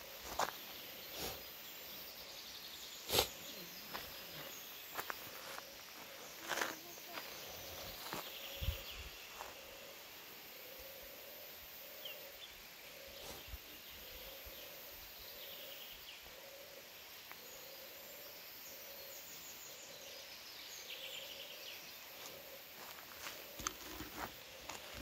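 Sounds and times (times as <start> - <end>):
small birds chirping: 0.0 - 11.2, 17.2 - 25.0.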